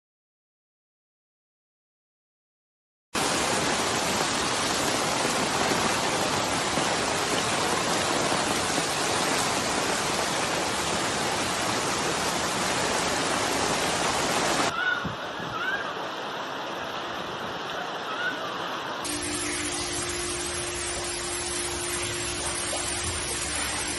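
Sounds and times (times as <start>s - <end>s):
water rushing: 3.2s - 23.9s.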